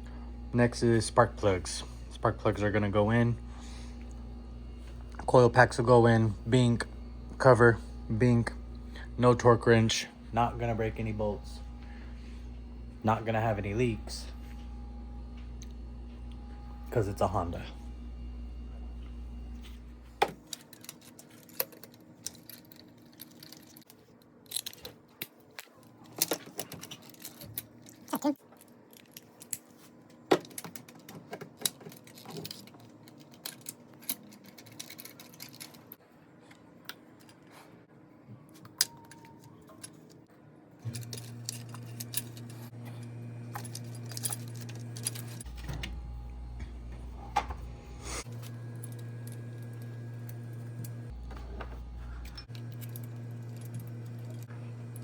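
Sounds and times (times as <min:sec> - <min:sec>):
metal tools clinking: 0:20.2 - 0:36.0, 0:40.8 - 0:45.9, 0:48.2 - 0:55.0
low hum: 0:40.8 - 0:55.0.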